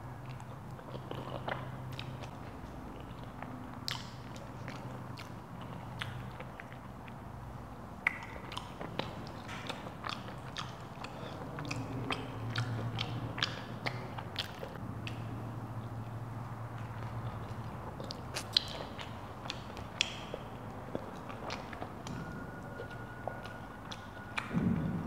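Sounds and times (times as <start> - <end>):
chewing and eating: 0.0 - 25.0
wet mouth clicks: 3.0 - 7.2, 8.0 - 16.0, 16.7 - 22.2.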